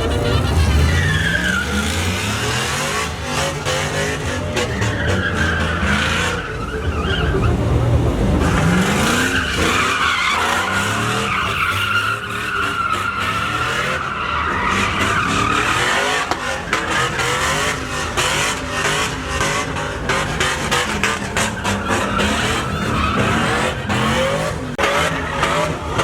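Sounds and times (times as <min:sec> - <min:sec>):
truck engine revving high: 0:00.0 - 0:26.0
tyres squealing on pavement: 0:00.0 - 0:26.0.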